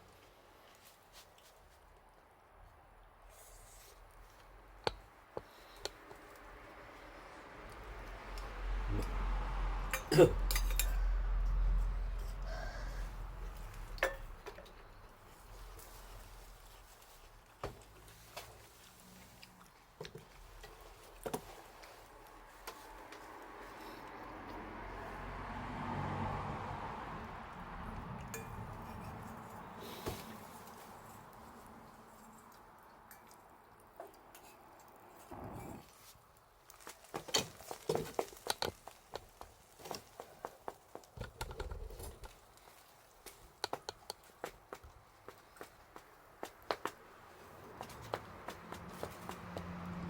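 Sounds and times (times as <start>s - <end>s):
wood fire crackling: 28.4s - 49.5s
campfire crackling and popping: 36.3s - 44.7s.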